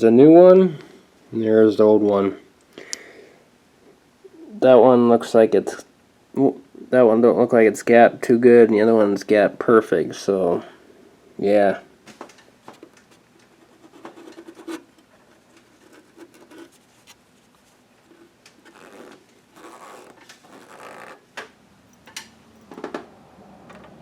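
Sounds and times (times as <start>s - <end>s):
light scraping and rustling: 12.2s - 21.2s.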